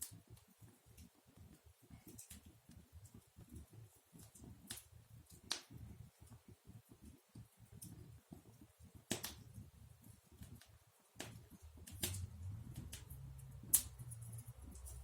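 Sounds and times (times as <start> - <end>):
wood fire crackling: 0.0 - 15.0
sharp fire pops: 9.1 - 9.5, 10.5 - 14.0.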